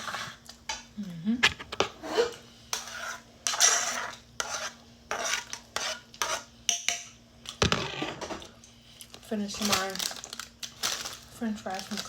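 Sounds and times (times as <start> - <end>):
faint steady hum: 0.0 - 12.0
metal utensil scraping a bowl: 1.8 - 6.5.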